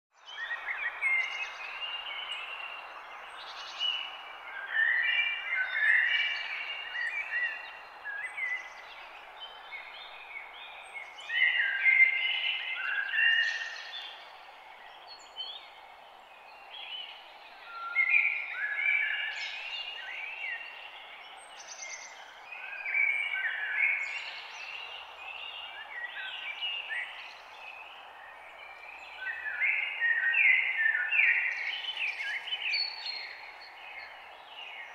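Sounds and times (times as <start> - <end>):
birds singing: 0.2 - 34.9.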